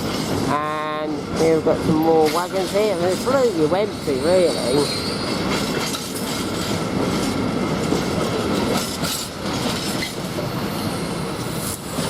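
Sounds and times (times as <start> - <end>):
freight train rolling on rails: 0.0 - 12.0.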